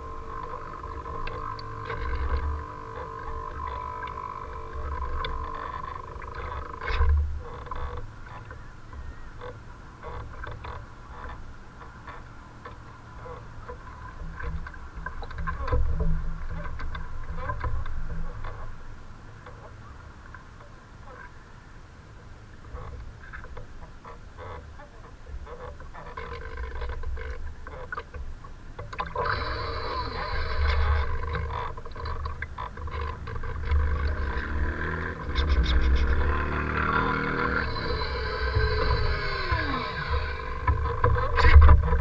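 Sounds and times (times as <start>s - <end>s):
steady high whine: 0.0s - 7.5s, 29.1s - 42.0s.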